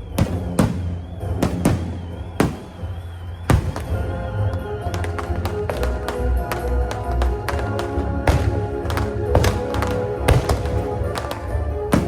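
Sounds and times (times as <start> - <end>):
background music: 0.0 - 12.0
firework bang: 0.2 - 4.1.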